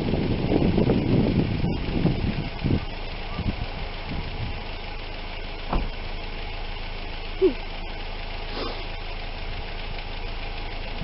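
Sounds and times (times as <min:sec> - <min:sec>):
car engine idling: 0:00.0 - 0:11.0
thud: 0:05.7 - 0:06.0.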